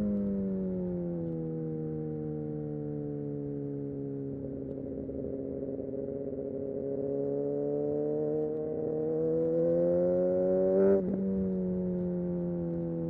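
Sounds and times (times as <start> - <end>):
motorcycle engine revving: 5.0 - 13.0.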